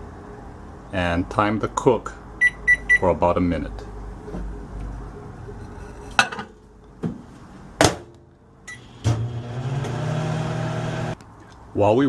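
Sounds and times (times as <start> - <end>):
microwave oven humming: 8.7 - 11.2.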